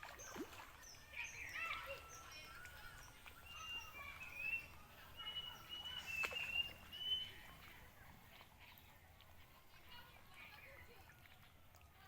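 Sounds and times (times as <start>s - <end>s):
birds whistling: 0.2s - 7.6s.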